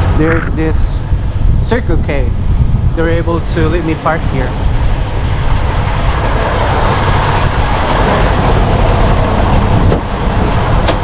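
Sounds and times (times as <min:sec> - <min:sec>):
diesel truck engine rumbling: 0:00.0 - 0:11.0.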